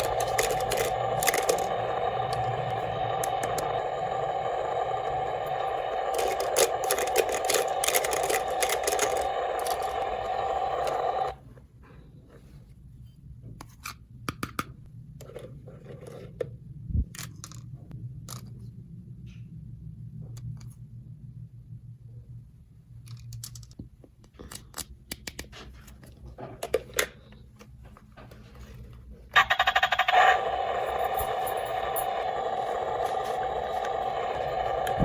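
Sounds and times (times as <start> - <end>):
plastic toy pieces clicking: 0.0 - 2.6, 6.1 - 10.0
loud steady multi-tone sound: 0.0 - 11.4, 30.3 - 35.0.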